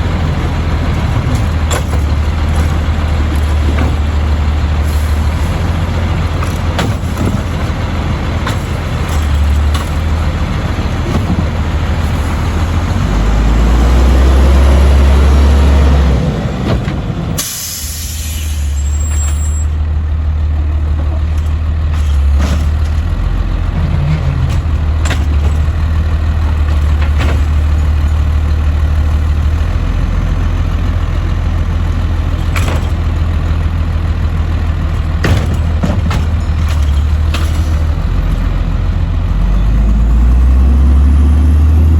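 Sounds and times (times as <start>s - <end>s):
truck diesel engine running: 0.0s - 41.9s
air brake hiss: 17.4s - 19.6s.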